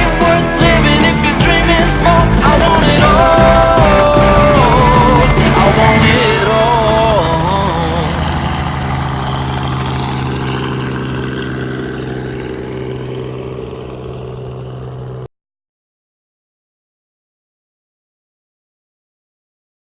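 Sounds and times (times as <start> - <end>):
helicopter engine and rotor: 0.0 - 15.3.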